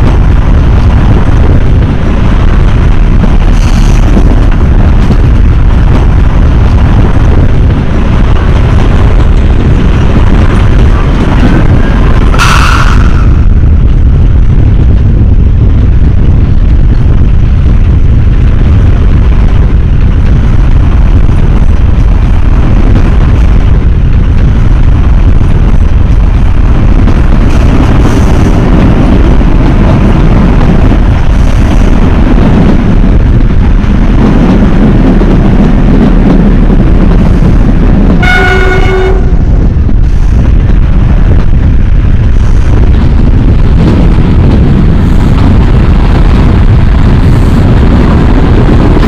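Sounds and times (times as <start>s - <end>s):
train rumbling: 0.0s - 49.0s
locomotive horn blast: 38.2s - 39.5s.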